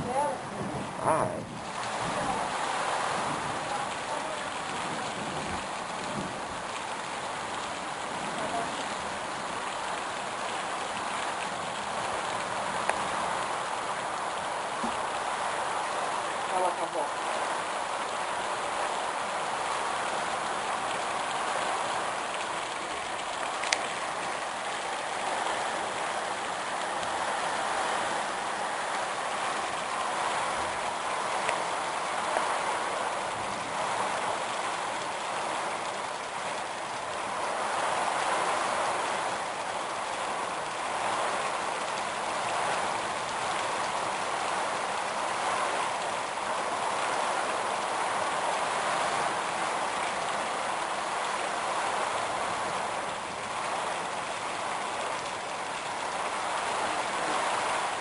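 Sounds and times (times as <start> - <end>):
strong storm wind rushing: 0.0 - 6.7
heavy rain: 0.0 - 58.0.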